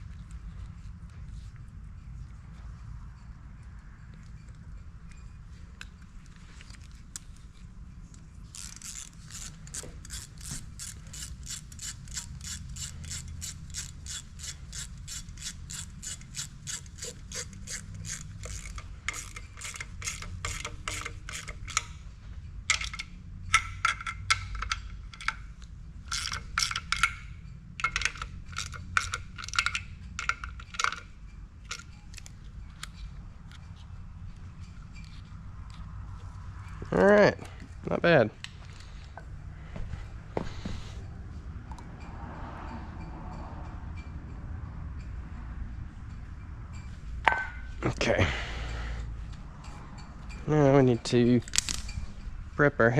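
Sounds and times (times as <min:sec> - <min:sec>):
ratchet wrench clicking: 0:08.5 - 0:33.8, 0:51.4 - 0:52.0.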